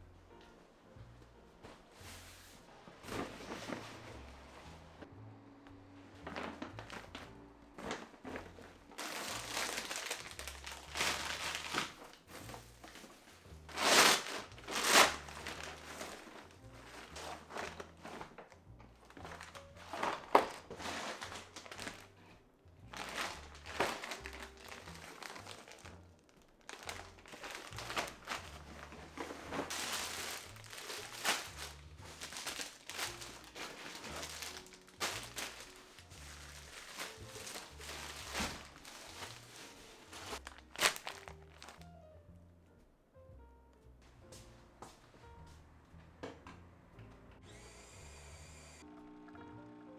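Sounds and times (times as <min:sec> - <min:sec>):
soft background music: 0:00.0 - 0:49.9
packaging rustling and crinkling: 0:01.6 - 0:05.1, 0:05.7 - 0:42.0.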